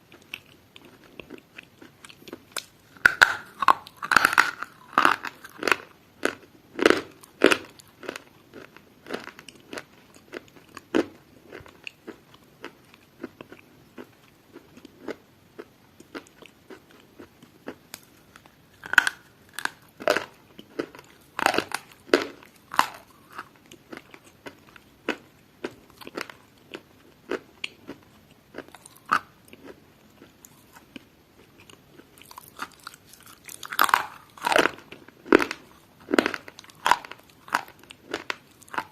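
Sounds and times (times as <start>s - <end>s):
crunchy food being chewed: 0.0s - 38.9s.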